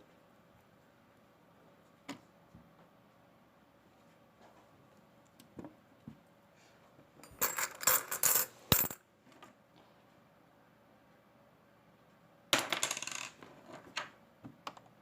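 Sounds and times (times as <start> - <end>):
coins clinking: 7.2 - 9.0, 12.6 - 13.4.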